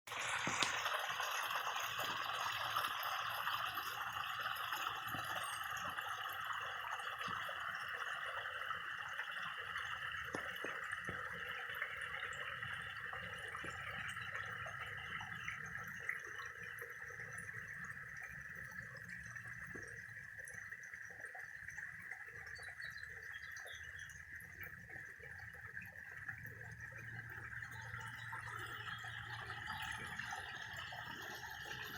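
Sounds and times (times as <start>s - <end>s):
waterfall splashing into pond: 0.1s - 18.1s, 24.5s - 31.9s.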